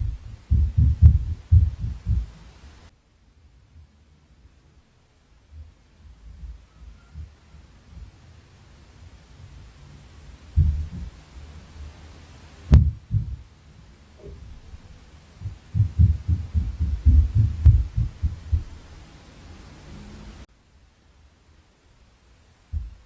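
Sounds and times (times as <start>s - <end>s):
dull thuds through ceiling: 0.0s - 2.6s, 10.4s - 12.0s, 12.6s - 13.6s, 14.2s - 19.0s, 22.7s - 23.0s
sharp knock: 12.7s - 13.4s, 15.4s - 18.7s.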